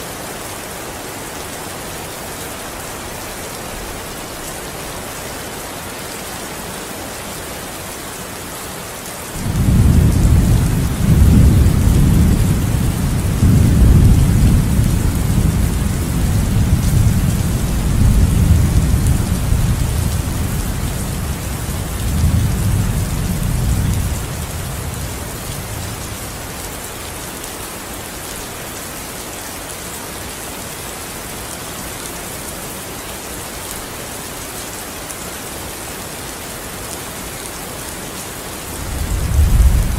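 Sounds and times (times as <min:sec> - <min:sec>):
steady rain: 0:00.0 - 0:39.9
rolling thunder: 0:09.4 - 0:25.0, 0:38.8 - 0:39.9.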